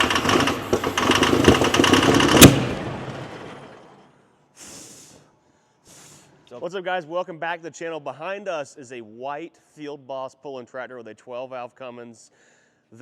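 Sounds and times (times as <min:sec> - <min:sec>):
sharp crack: 0:00.0 - 0:03.9
tractor engine running hard: 0:00.0 - 0:04.0
faint hisses: 0:04.6 - 0:06.6.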